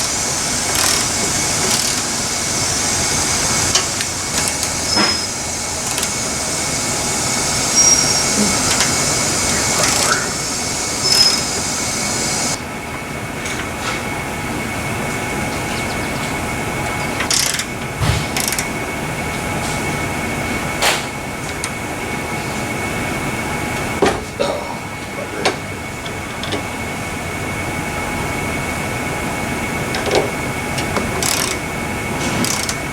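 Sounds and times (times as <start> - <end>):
workshop hum: 0.0 - 32.9
high hiss: 4.8 - 12.6.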